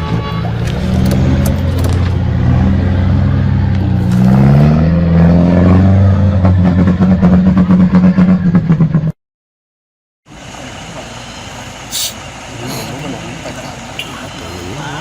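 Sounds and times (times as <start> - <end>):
truck engine under load: 0.0 - 9.1, 10.3 - 15.0.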